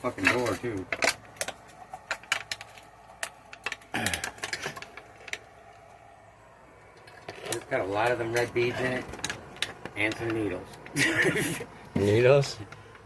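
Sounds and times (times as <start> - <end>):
sharp clicks and ticks: 6.9 - 11.0.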